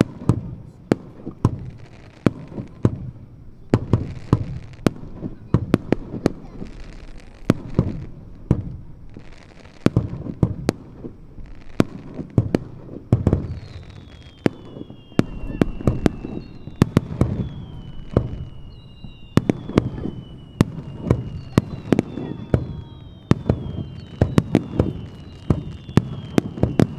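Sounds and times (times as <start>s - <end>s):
fireworks bangs: 0.0s - 26.9s
falling firework whistles: 1.4s - 26.9s
low rolling rumble: 14.9s - 21.3s.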